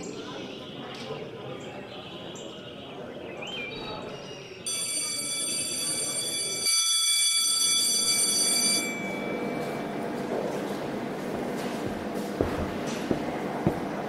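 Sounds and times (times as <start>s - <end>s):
high ringing tone: 4.7s - 9.9s.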